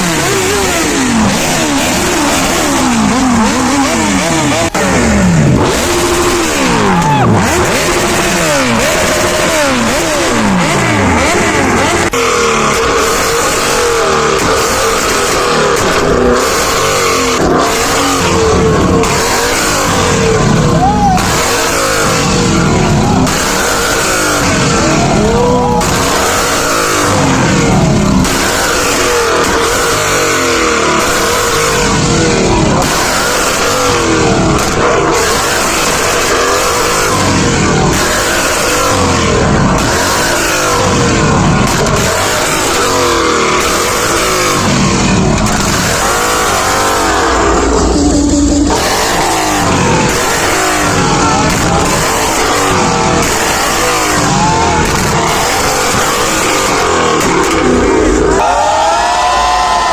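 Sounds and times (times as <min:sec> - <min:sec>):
sports car engines revving: 0:00.0 - 0:59.9.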